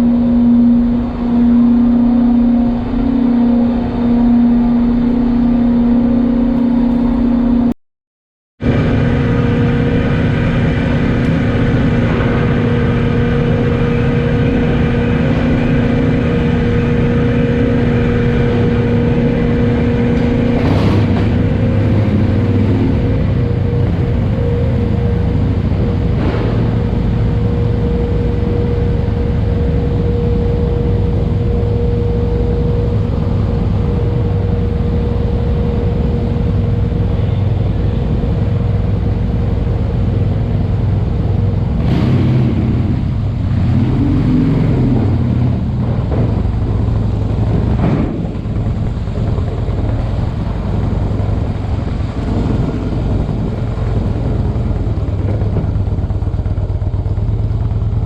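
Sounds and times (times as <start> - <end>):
steady tone: 0.0 - 7.8, 8.6 - 58.0
vehicle engines rumbling: 0.0 - 7.8, 8.6 - 58.0
sharp knocks: 46.0 - 50.0.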